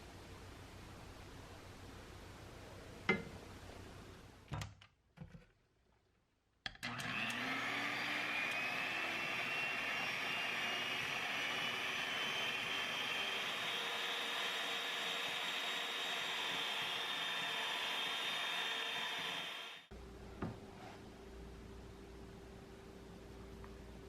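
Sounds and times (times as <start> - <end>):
small electric motor running: 6.9 - 19.9.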